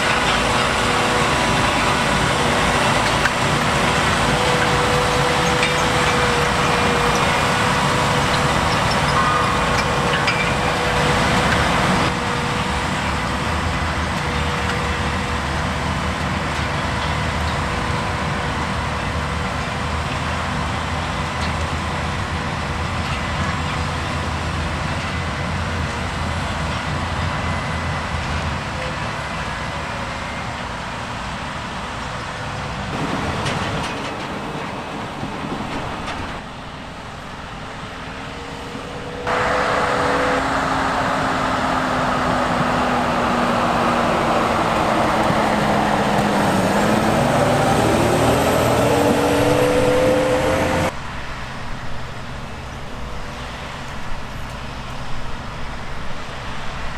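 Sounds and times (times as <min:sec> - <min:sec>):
diesel machinery droning: 0:00.0 - 0:23.5, 0:32.9 - 0:51.0
machine whine: 0:33.0 - 0:36.5, 0:38.0 - 0:50.9.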